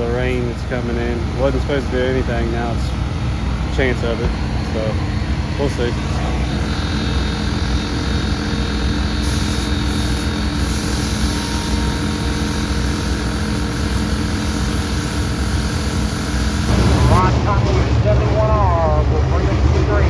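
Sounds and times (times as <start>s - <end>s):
race car engines droning: 0.0s - 14.2s.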